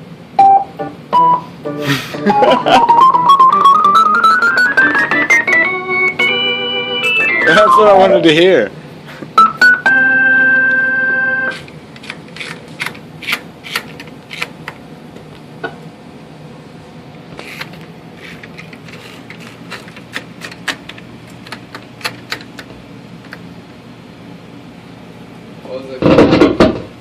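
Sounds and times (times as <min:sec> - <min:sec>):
organ notes and chord: 0:00.4 - 0:08.5, 0:09.3 - 0:11.6.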